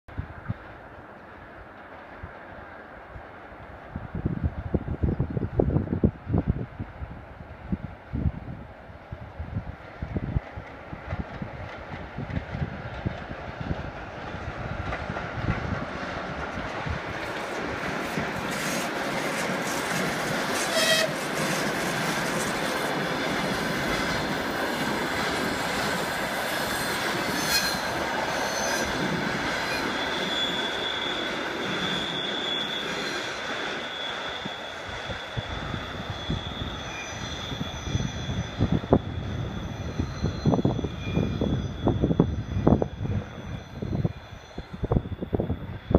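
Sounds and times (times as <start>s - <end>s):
wind buffeting microphone: 3.1s - 30.0s, 34.8s - 45.9s
train wheels clattering on rails: 9.9s - 45.9s
high wheel squeal: 18.1s - 45.9s.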